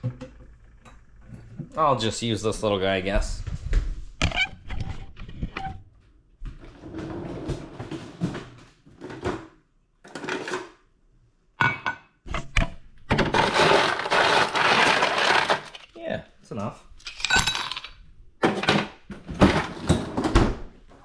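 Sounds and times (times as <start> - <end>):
rattling clatter of ice: 13.2 - 16.0, 17.0 - 20.1
ice cubes clinking: 13.3 - 15.9, 17.0 - 18.0.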